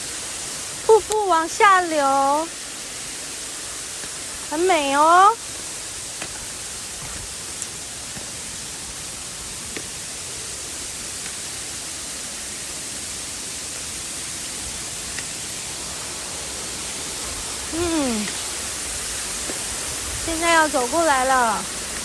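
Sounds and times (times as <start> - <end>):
waterfall rushing: 0.0 - 22.0
voice-like call: 17.7 - 18.4.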